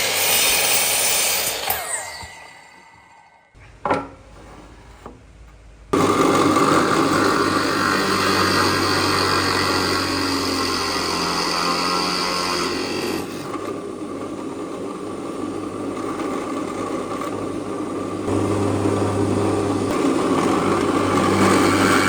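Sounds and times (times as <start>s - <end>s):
power tool spinning down: 0.0s - 3.5s, 6.0s - 13.7s, 18.3s - 22.0s
power tool running: 0.0s - 3.6s, 5.9s - 22.0s.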